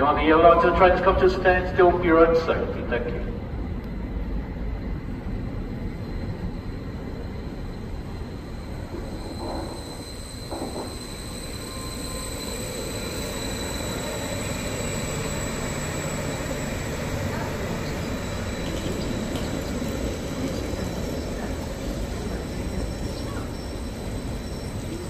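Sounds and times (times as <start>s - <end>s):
train low rumble: 0.0s - 25.0s
high wheel squeal: 7.0s - 25.0s.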